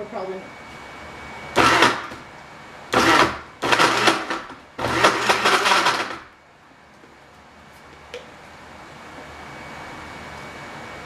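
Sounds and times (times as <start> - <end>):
blender pulsing: 1.6 - 2.2, 2.9 - 6.3.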